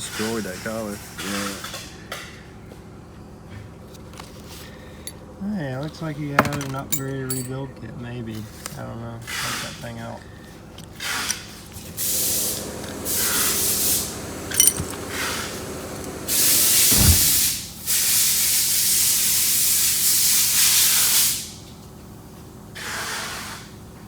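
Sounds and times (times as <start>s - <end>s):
light metallic clink: 6.9s - 7.5s, 14.5s - 15.1s
pressurised jet hissing: 12.0s - 21.4s
dull thump: 14.5s - 15.2s, 16.7s - 17.7s.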